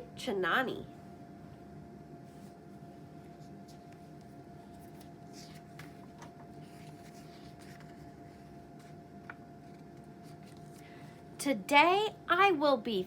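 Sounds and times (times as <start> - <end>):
low electrical hum with whine: 0.0 - 13.0
picture book pages rustling: 2.3 - 11.1.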